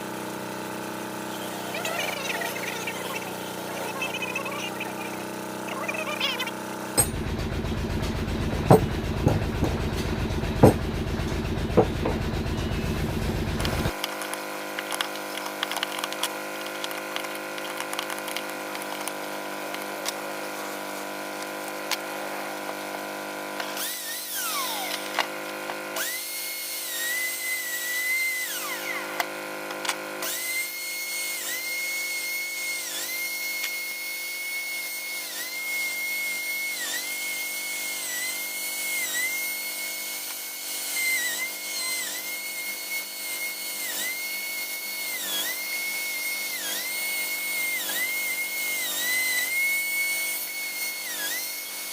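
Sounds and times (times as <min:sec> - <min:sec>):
rotary tool carving wood: 0:00.0 - 0:51.9.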